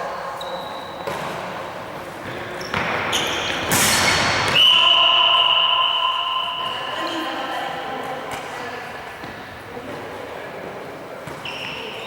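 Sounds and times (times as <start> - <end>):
high-pitched signal tone: 4.6 - 7.2.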